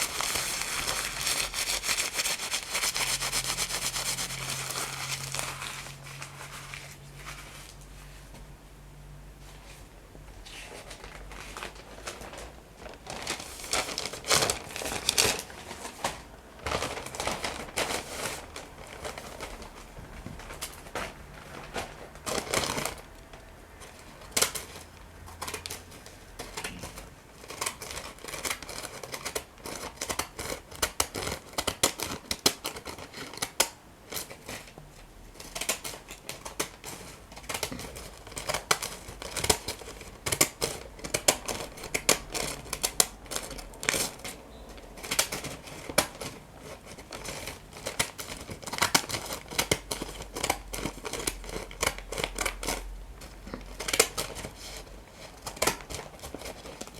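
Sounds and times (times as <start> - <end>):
scissors cutting paper: 0.0 - 7.0, 23.8 - 34.7, 35.3 - 56.9.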